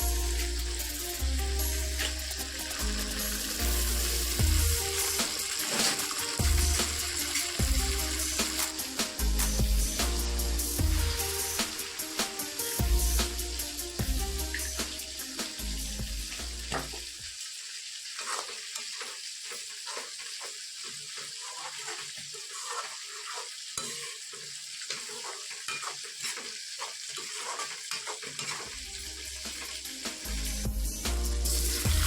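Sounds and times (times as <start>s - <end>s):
background music: 0.0s - 16.8s, 28.8s - 32.0s
spatula scraping a pan: 0.0s - 17.1s, 18.0s - 32.0s
chicken sizzling in a pan: 0.0s - 32.0s.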